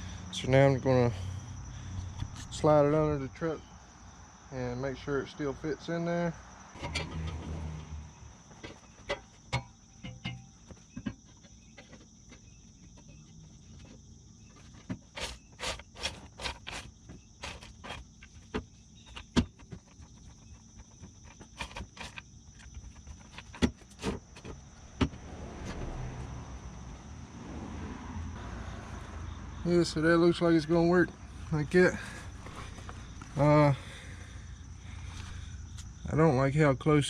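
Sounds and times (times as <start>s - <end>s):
high insect trill: 0.0s - 37.0s
metal exhaust pipe clanking: 6.8s - 8.0s, 9.0s - 10.6s.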